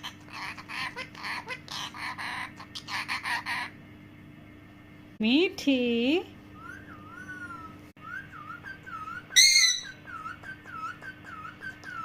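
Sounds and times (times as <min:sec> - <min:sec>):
parrot whistling: 0:06.6 - 0:12.0
parrot shrill call: 0:08.6 - 0:12.0.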